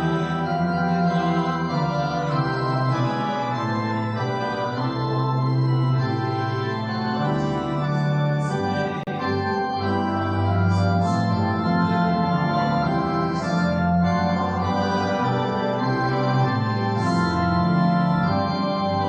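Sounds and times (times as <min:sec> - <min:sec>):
church organ chords: 0:00.0 - 0:19.0.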